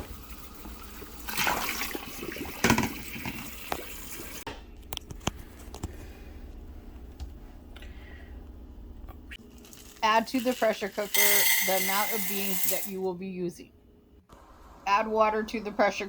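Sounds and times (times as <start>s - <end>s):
water splashing into sink: 0.7s - 4.4s.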